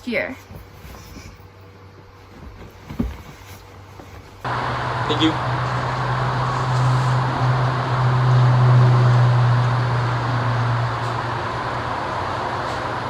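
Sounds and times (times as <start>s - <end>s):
noisy hiss: 4.4s - 9.0s
low drone: 4.5s - 13.0s.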